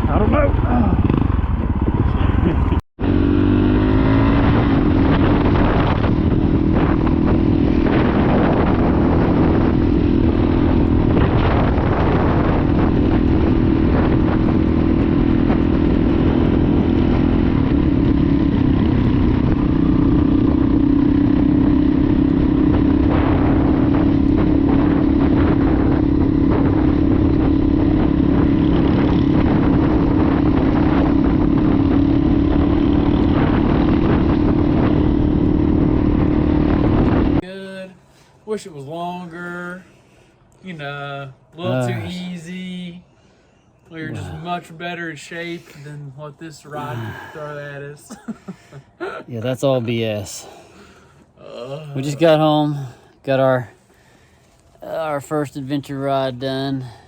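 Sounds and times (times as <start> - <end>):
motorcycle engine running: 0.0 - 37.4.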